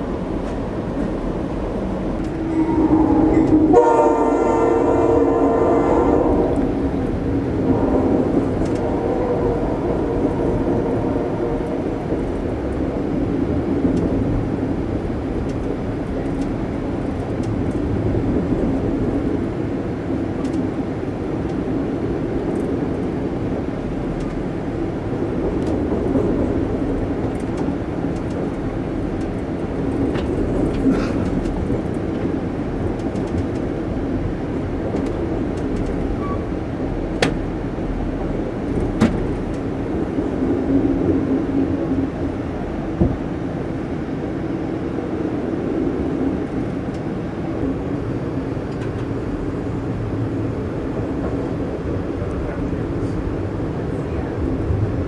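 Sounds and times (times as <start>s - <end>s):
train wheels rumbling on rail: 0.0s - 55.0s
train horn: 2.3s - 6.7s.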